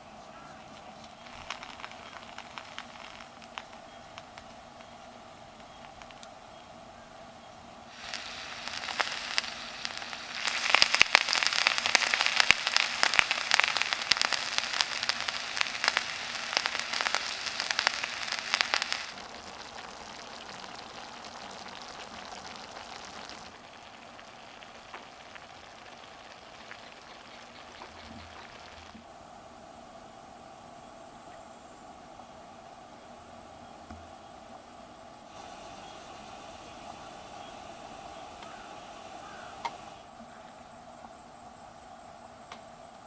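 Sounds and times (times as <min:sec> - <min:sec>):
food sizzling on a grill: 0:01.2 - 0:06.1, 0:07.9 - 0:29.0, 0:35.3 - 0:40.1.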